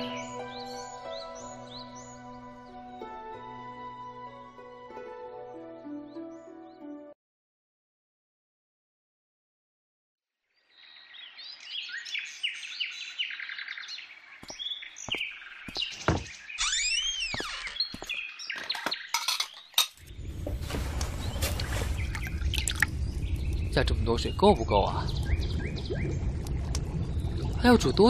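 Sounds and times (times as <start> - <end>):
birds chirping: 10.8 - 28.0
crockery and pots clinking: 18.8 - 20.0
rushing noise with low rumble: 20.1 - 28.0.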